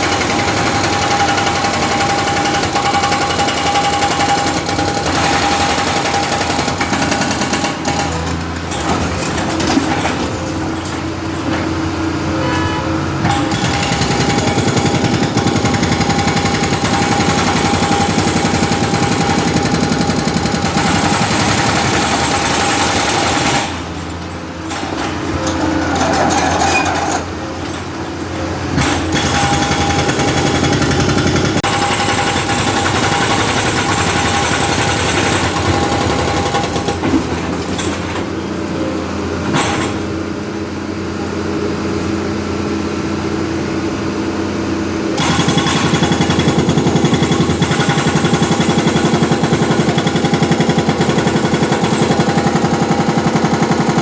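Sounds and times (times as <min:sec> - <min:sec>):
hydraulic breaker pounding concrete: 0:00.0 - 0:38.8, 0:39.4 - 0:40.4, 0:45.1 - 0:54.0.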